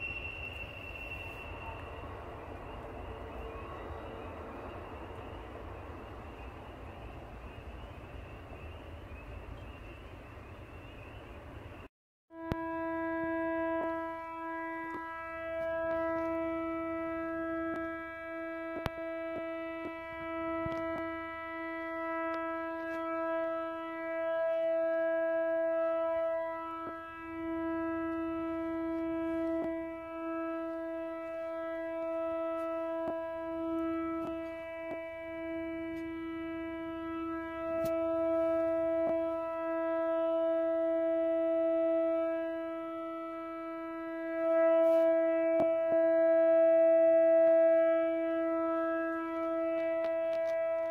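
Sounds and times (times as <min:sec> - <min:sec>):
horn-like drone: 0:00.0 - 0:50.9.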